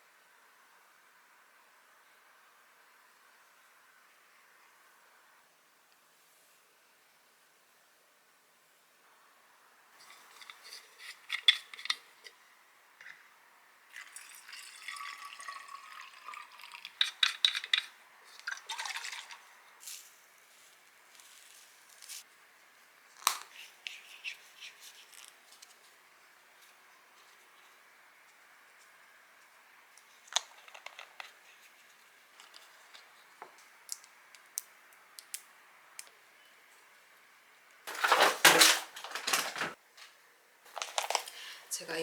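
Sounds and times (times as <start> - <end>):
faint room hiss: 0.0 - 42.0
clicks of small objects handled: 10.0 - 12.0, 30.3 - 31.4, 33.6 - 36.1, 37.9 - 40.1, 40.7 - 41.5
liquid pouring into container: 13.9 - 17.7, 18.4 - 19.5
container clicks and knocks: 37.9 - 39.8.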